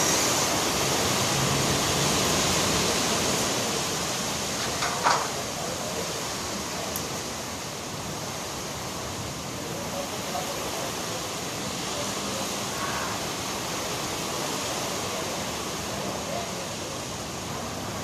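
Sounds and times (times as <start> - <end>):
rain: 0.0 - 18.0
strong wind: 0.0 - 18.0.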